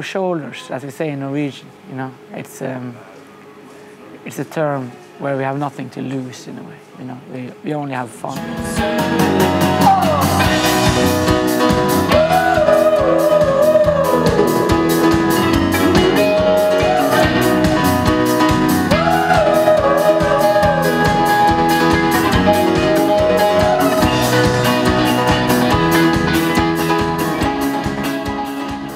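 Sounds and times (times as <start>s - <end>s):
band music with drums guitar and vocals: 8.4s - 28.9s.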